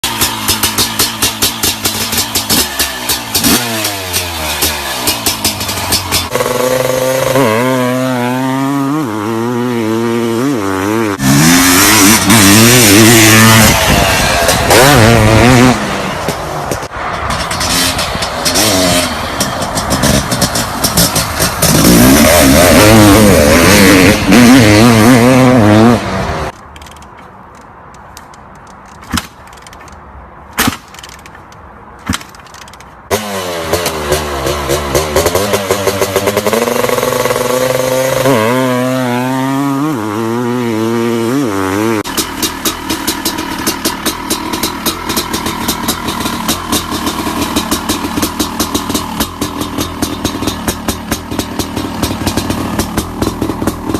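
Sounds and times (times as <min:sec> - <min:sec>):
two-stroke engine revving: 0:00.0 - 0:26.6, 0:33.1 - 0:53.9
sharp cracks: 0:26.5 - 0:36.3.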